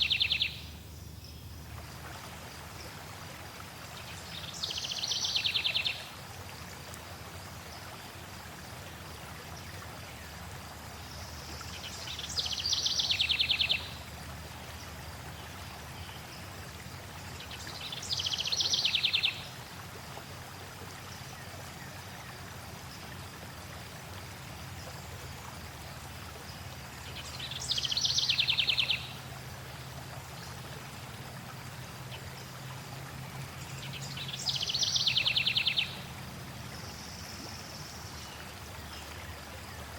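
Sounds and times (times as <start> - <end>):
songbird singing with falling trill: 0.0 - 1.5
flowing water rushing: 0.0 - 39.9.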